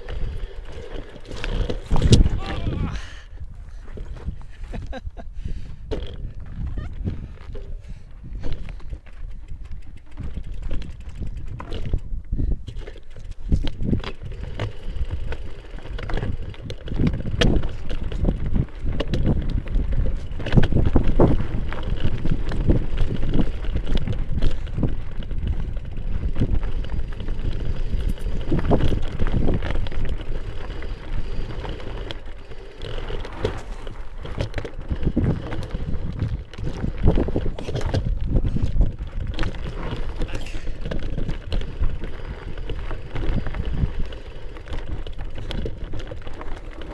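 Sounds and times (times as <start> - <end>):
bike knocks and rattles: 0.0 - 2.7, 5.8 - 46.9
tyres rolling on dirt: 0.0 - 3.0, 12.7 - 46.9
wind on microphone: 0.0 - 32.1, 32.9 - 46.3.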